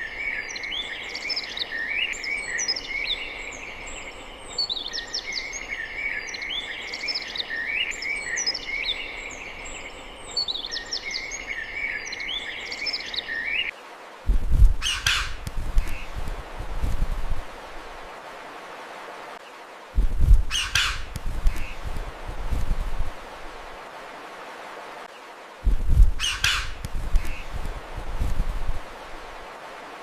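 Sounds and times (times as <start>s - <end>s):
songbirds chirping: 0.0s - 30.0s.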